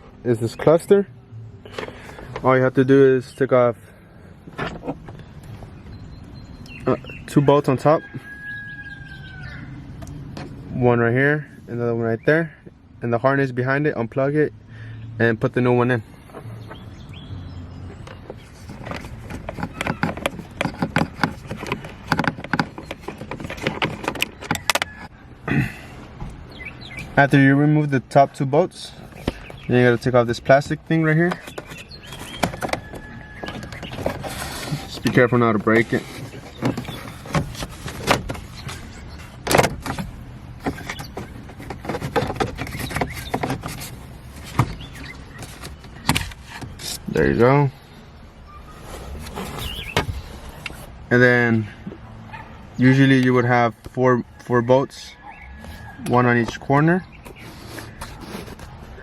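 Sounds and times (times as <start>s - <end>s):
plastic clicks and knocks: 18.0s - 25.0s.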